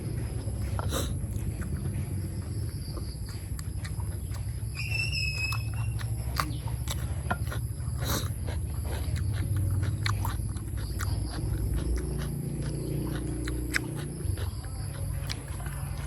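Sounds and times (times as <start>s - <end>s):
close chewing with mouth clicks: 0.0s - 16.0s
low rumble: 0.0s - 16.0s
whistled bird note: 4.8s - 6.0s.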